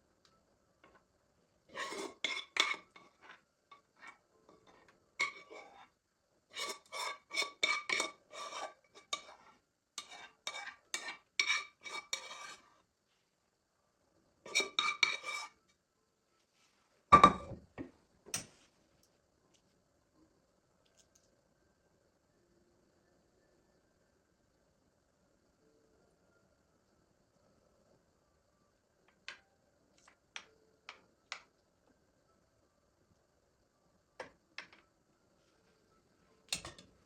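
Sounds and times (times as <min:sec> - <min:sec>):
metal utensil scraping a dish: 0:01.7 - 0:05.9, 0:06.5 - 0:12.7, 0:14.5 - 0:15.6, 0:36.5 - 0:36.9.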